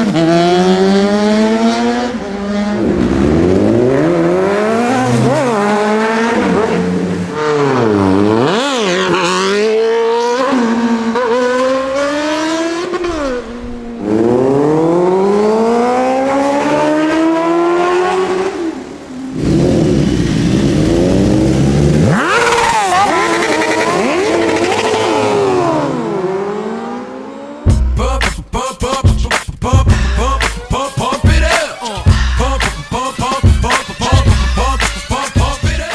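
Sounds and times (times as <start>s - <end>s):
motorcycles passing by: 0.0s - 27.7s
motorcycle engines revving: 0.0s - 27.8s.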